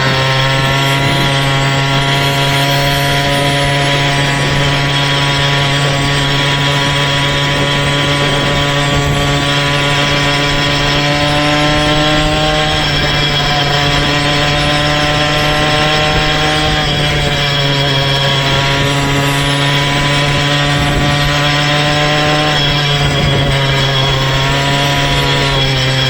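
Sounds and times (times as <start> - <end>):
buzzy small bicycle engine: 0.0 - 26.0.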